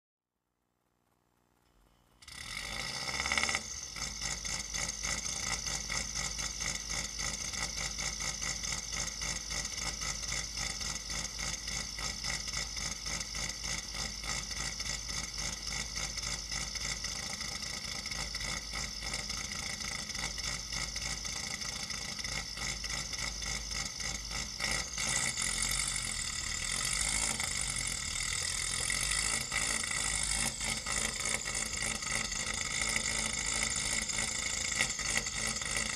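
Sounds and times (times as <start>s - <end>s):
car engine choppy pulsing idle: 2.2s - 35.9s.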